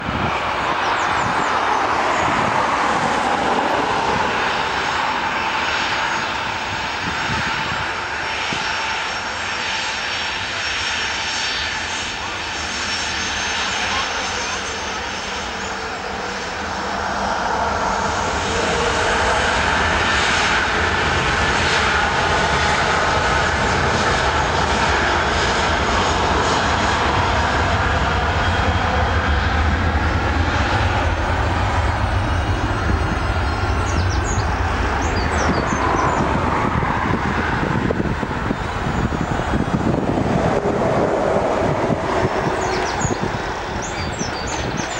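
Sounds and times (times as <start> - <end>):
jet engines at takeoff power: 0.0 - 44.9.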